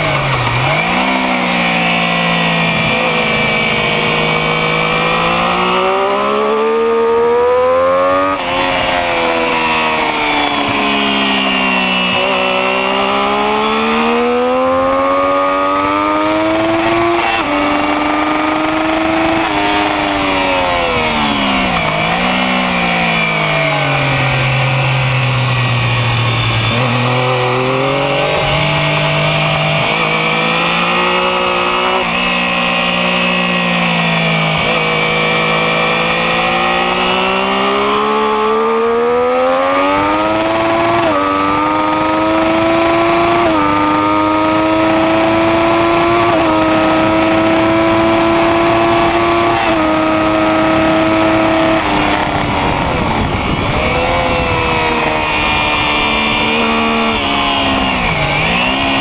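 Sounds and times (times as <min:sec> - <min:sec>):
motorcycle engine revving: 0:00.0 - 0:59.0
wind rushing: 0:51.4 - 0:58.3.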